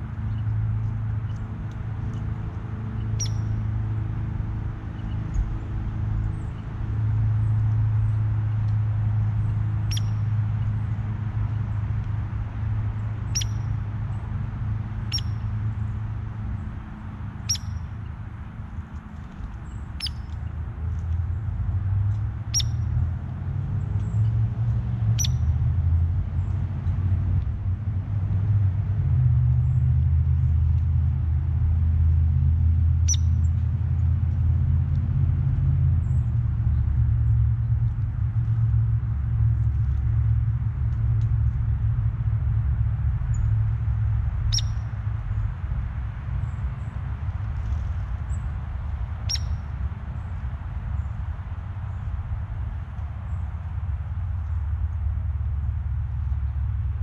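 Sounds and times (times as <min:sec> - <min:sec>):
low rumble: 0:00.0 - 0:57.0
bird chip call: 0:03.2 - 0:03.5, 0:09.9 - 0:10.2, 0:13.3 - 0:13.6, 0:15.1 - 0:15.4, 0:17.5 - 0:17.9, 0:20.0 - 0:20.4, 0:22.5 - 0:22.8, 0:25.2 - 0:25.4, 0:33.1 - 0:33.4, 0:44.5 - 0:44.8, 0:49.2 - 0:49.6.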